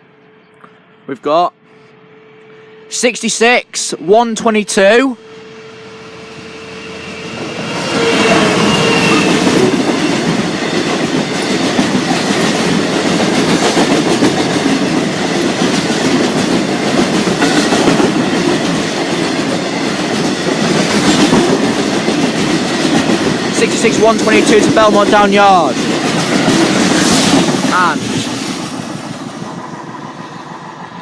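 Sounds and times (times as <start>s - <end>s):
diesel locomotive: 0.0s - 31.0s.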